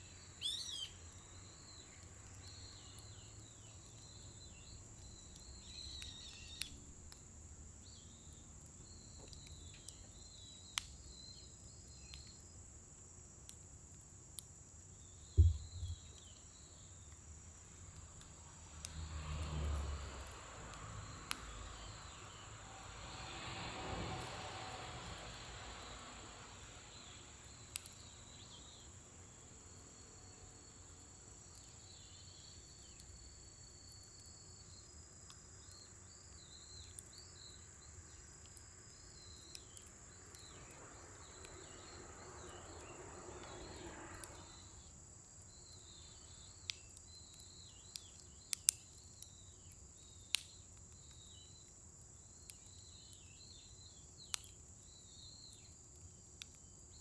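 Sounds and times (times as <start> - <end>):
bonfire burning: 0.0 - 57.0
insects chirping: 0.0 - 57.0
fire pops and cracks: 0.4 - 22.5, 27.0 - 29.0, 31.2 - 44.7, 45.4 - 57.0.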